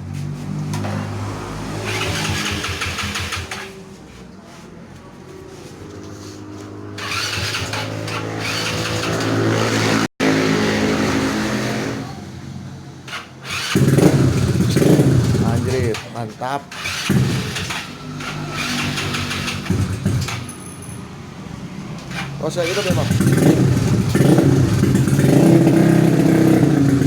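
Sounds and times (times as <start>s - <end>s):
scooter engine starting and running: 0.1s - 4.0s, 5.6s - 27.0s
loud engine burst: 13.1s - 16.1s, 16.7s - 20.4s, 22.1s - 27.0s.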